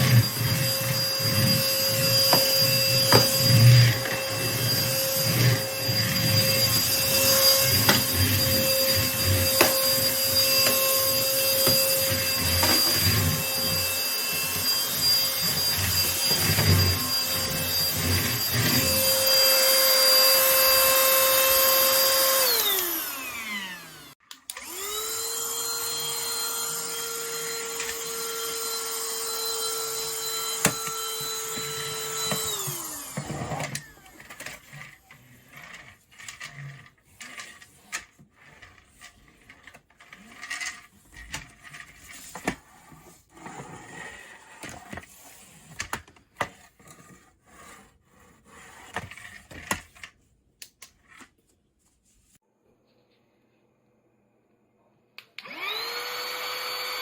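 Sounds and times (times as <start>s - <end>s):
vacuum cleaner motor whine: 0.0s - 36.8s, 55.4s - 57.0s.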